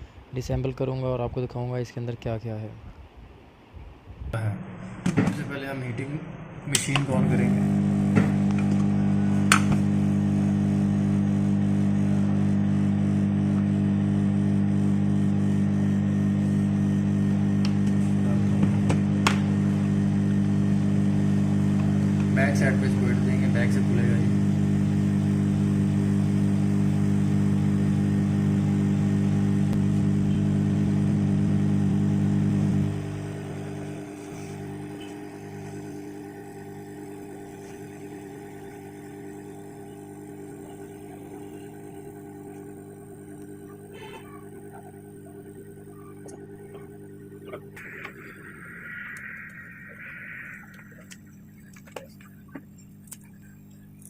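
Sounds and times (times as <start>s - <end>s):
heat gun motor hum: 7.3s - 48.2s.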